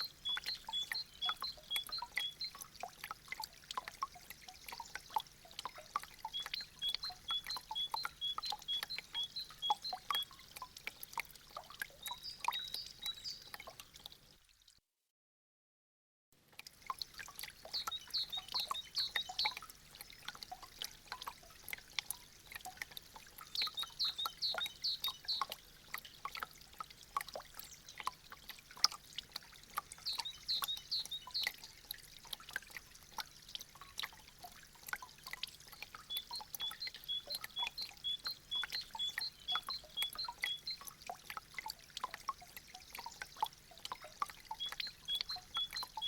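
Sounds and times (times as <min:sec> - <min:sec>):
ringing water drop plinks: 0:00.0 - 0:13.8, 0:16.9 - 0:21.4, 0:22.0 - 0:26.5, 0:29.8 - 0:32.4, 0:34.9 - 0:46.0
water dripping from icicles: 0:00.0 - 0:14.8, 0:16.4 - 0:46.0.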